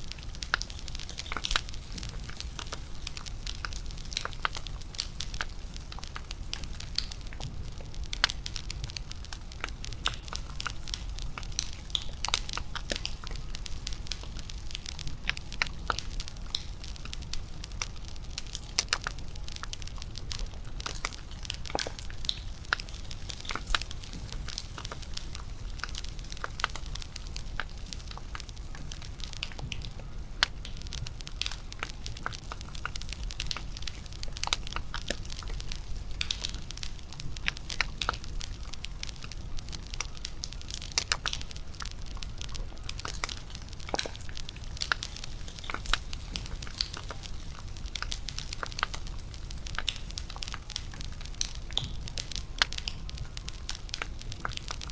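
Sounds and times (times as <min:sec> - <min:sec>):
low rumble of flames: 0:00.0 - 0:54.9
wood popping and snapping: 0:31.4 - 0:54.8.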